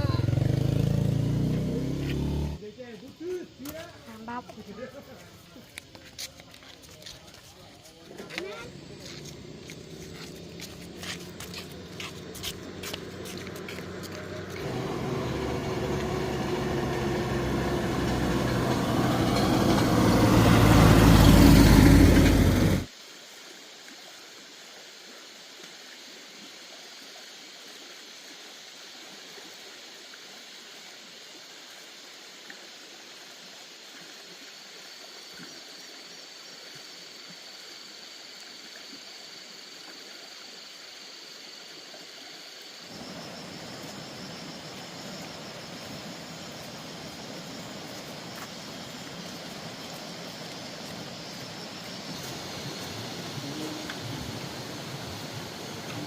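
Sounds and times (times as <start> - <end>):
vehicle engine approaching: 0.0 - 2.7, 8.5 - 22.9, 42.9 - 56.0
outdoor ambience hiss: 0.0 - 56.0.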